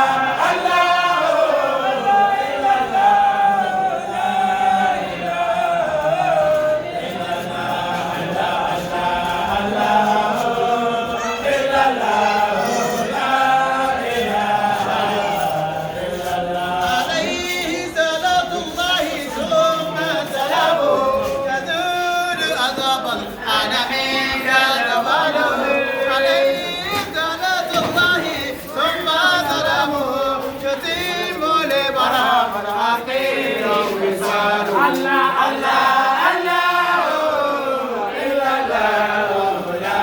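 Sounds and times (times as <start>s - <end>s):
group of voices chanting: 0.0s - 40.0s.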